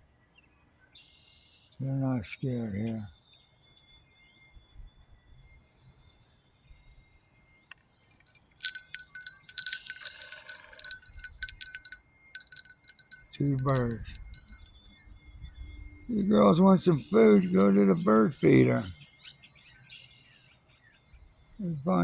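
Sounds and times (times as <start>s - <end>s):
wind chimes ringing: 8.2s - 18.9s.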